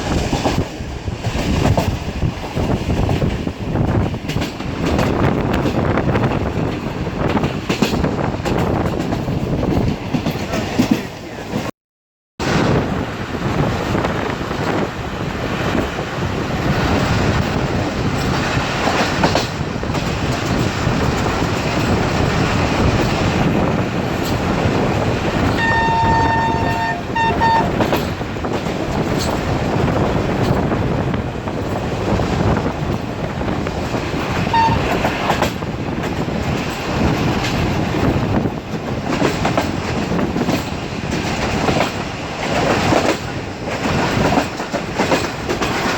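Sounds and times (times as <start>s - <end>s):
train rumbling: 0.0s - 11.7s, 12.4s - 45.9s
wheels clattering over rail joints: 16.7s - 45.9s
train horn: 25.6s - 28.0s, 34.5s - 35.2s.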